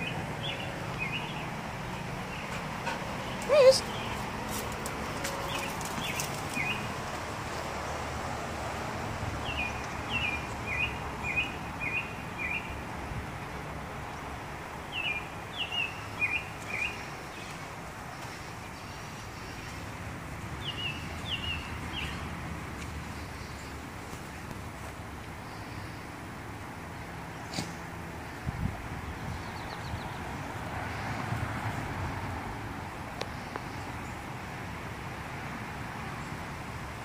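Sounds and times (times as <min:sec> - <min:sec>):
songbird chirping: 0:00.0 - 0:07.2, 0:09.4 - 0:12.8, 0:14.1 - 0:24.6
outdoor background noise: 0:00.0 - 0:37.0.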